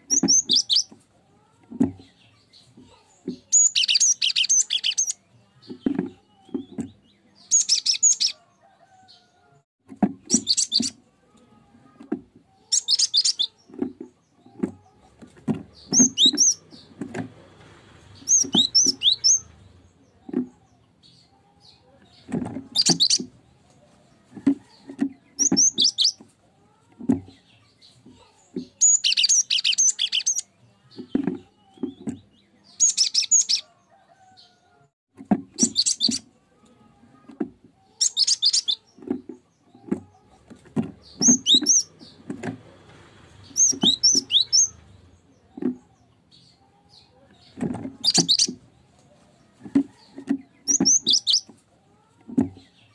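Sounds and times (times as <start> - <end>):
bird singing whistled notes: 43.6 - 44.8, 50.7 - 51.5.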